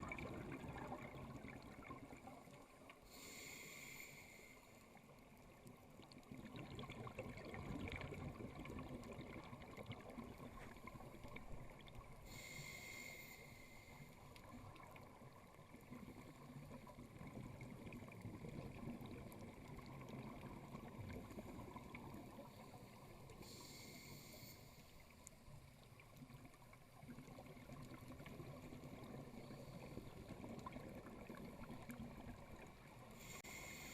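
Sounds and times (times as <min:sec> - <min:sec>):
exhaled bubbles rushing: 0:00.0 - 0:02.2.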